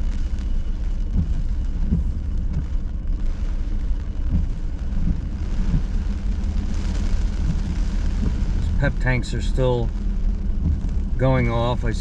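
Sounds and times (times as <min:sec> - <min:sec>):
car engine rumble: 0:00.0 - 0:12.0
tyres on wet road: 0:00.0 - 0:12.0
windshield wipers: 0:00.2 - 0:12.0.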